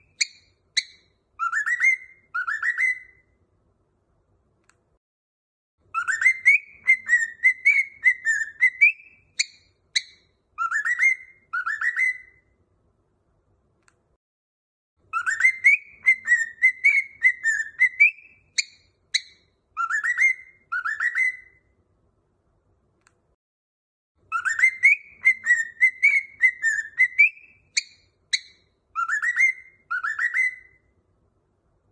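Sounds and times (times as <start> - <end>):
whistled tune: 0.0 - 3.3, 5.9 - 12.5, 15.1 - 21.7, 24.3 - 30.9.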